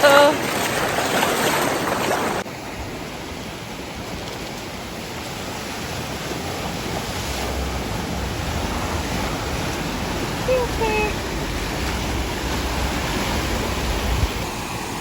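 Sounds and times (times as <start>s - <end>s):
wind rumble on microphone: 0.6s - 15.0s
waterfall rushing: 4.8s - 15.0s.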